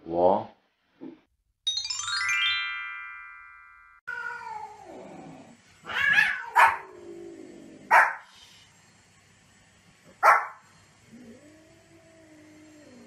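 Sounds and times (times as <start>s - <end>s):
transition chime: 1.7s - 4.0s
dog crying: 5.9s - 6.9s
dog barking: 6.1s - 6.9s, 7.9s - 8.3s, 10.2s - 10.6s.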